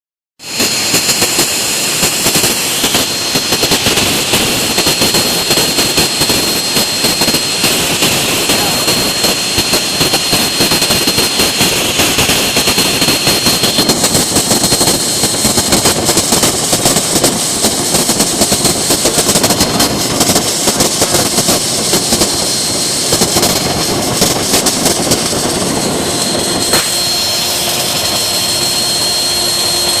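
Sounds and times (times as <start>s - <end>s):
rough cutting noise with chattering: 0.4s - 30.0s
router spindle whining: 24.8s - 30.0s.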